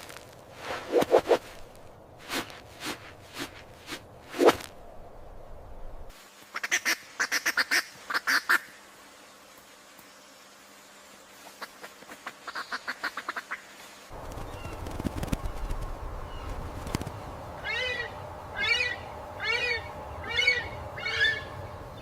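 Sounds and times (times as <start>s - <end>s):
bird calls: 11.6s - 22.0s
high sharp bird calls: 14.2s - 22.0s.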